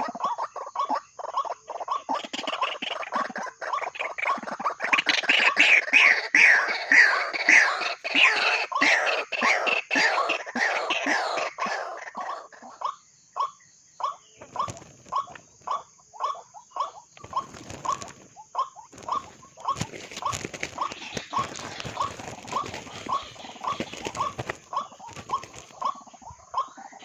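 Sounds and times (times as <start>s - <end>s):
rustling: 17.2s - 25.9s.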